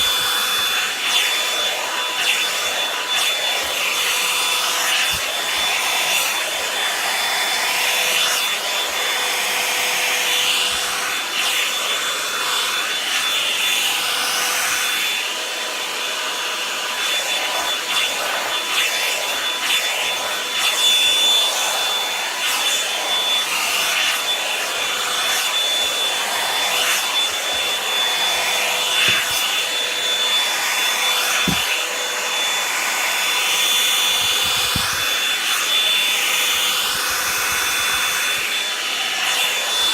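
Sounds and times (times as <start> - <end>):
hair dryer brush motor whine: 0.0 - 39.9
bristles brushing through hair: 34.0 - 35.3.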